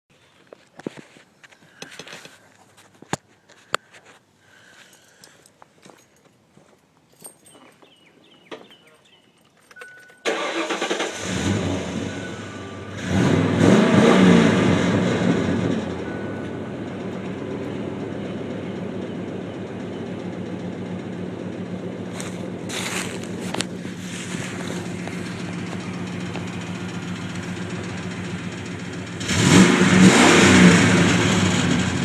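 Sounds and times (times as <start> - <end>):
car engine starting and idling: 9.6 - 32.0.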